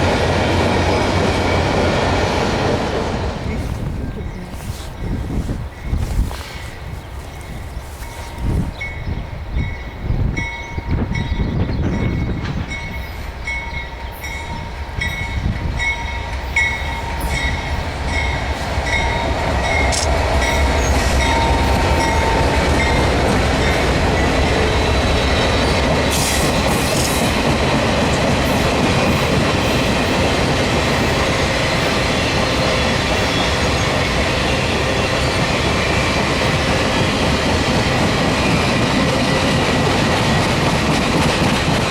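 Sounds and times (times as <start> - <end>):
train wheels clickety-clack: 10.4 - 13.8, 14.5 - 41.9.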